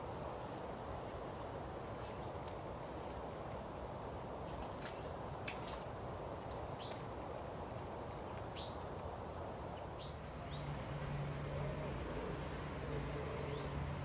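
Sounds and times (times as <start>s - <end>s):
low outdoor background: 0.0s - 14.0s
small birds chirping: 3.6s - 10.8s.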